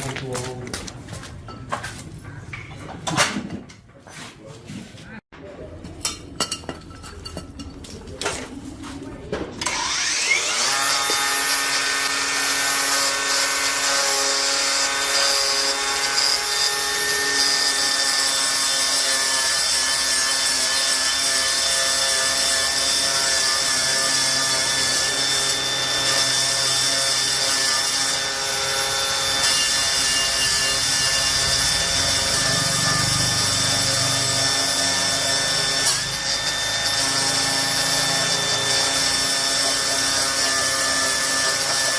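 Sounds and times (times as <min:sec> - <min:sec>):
electric power tool whining: 0:09.6 - 0:17.9, 0:24.6 - 0:41.9.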